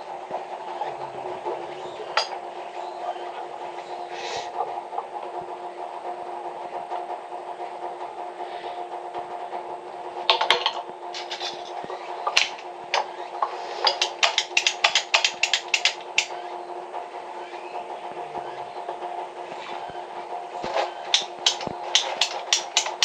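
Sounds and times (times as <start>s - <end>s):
steady mechanical hum: 0.0s - 23.0s
sharp knocks or taps: 13.8s - 16.3s, 21.1s - 23.0s.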